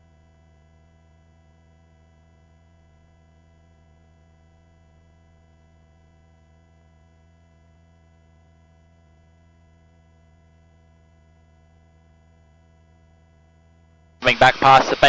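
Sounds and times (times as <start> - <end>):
faint intercom hum: 14.2 - 15.0.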